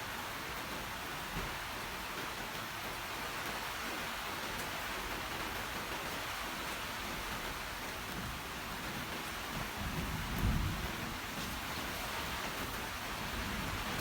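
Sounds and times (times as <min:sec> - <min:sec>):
low thunder rumble: 0:09.8 - 0:11.2.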